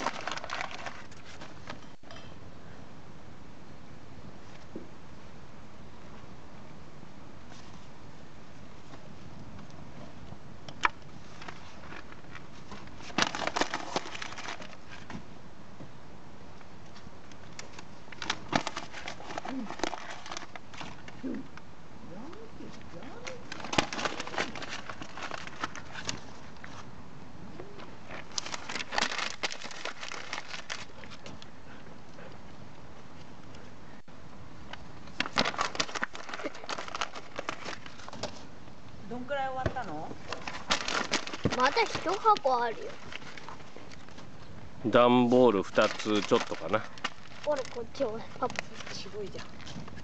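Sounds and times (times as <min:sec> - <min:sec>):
burning paper crackling: 0:00.0 - 0:01.9, 0:07.4 - 0:15.2, 0:16.6 - 0:21.6, 0:22.6 - 0:27.0, 0:27.8 - 0:31.6, 0:34.6 - 0:50.0
bonfire crackling and popping: 0:40.2 - 0:44.2.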